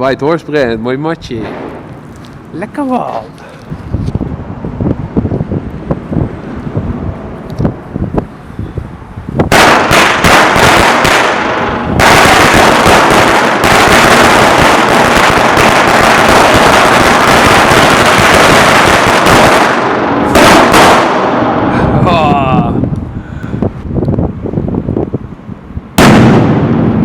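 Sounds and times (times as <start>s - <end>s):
firecrackers banging: 1.3s - 3.7s, 9.4s - 22.1s, 26.0s - 27.0s.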